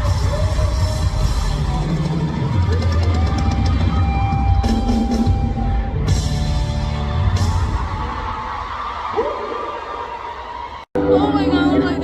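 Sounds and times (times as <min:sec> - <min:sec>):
heavy bass: 0:00.0 - 0:08.3
rock drum kit: 0:00.0 - 0:08.8.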